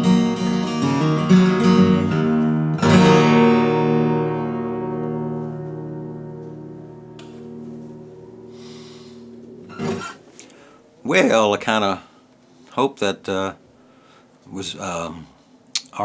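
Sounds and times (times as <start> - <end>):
guitar strumming: 0.0 - 10.5.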